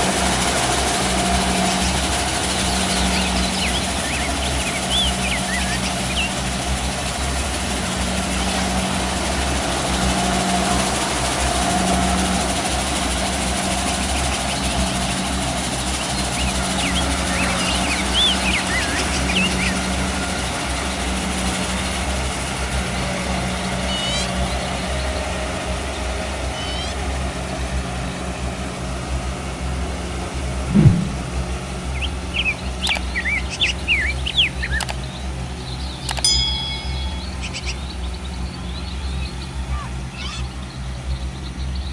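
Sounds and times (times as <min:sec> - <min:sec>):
diesel engine droning: 0:00.0 - 0:41.9
birds chirping: 0:01.6 - 0:07.5, 0:14.0 - 0:20.0, 0:31.8 - 0:41.9
short thump: 0:30.7 - 0:31.3.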